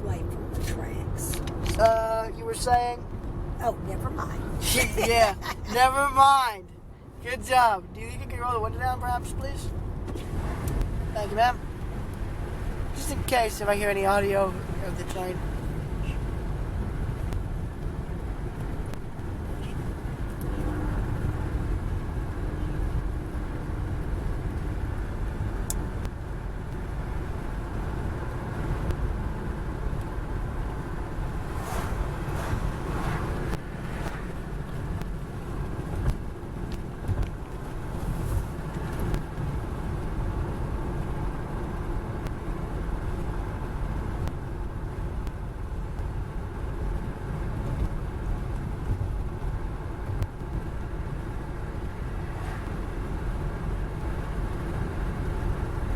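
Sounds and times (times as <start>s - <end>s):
road and wind noise in car: 0.0s - 55.9s
wind swishes: 30.8s - 35.8s.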